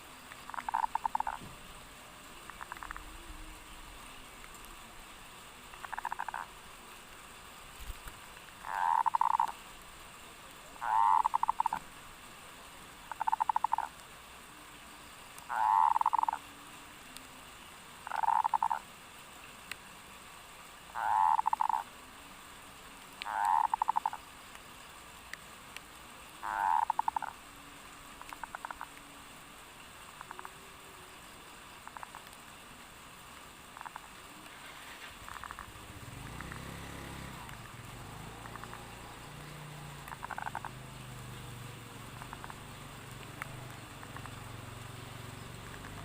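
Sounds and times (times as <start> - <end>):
dove cooing: 8.7 - 9.6, 10.8 - 11.8, 15.5 - 16.4, 18.1 - 18.8, 21.0 - 21.9, 23.3 - 24.2, 26.4 - 27.4.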